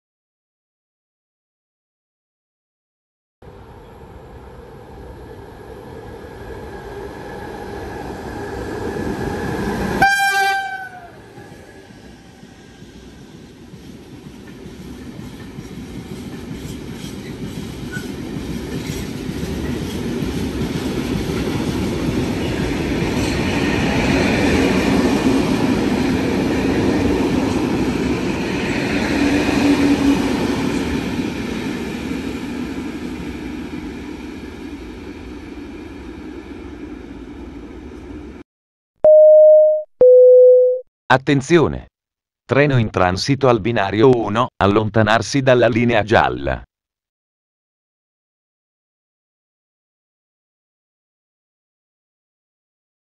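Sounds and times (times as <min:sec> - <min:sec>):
train wheels rumbling on rails: 0:11.3 - 0:36.1
two-note announcement chime: 0:39.1 - 0:40.8.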